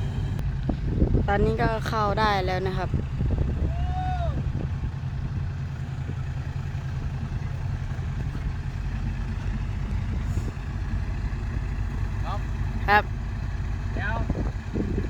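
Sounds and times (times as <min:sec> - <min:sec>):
diesel engine at low revs: 0:00.0 - 0:15.0.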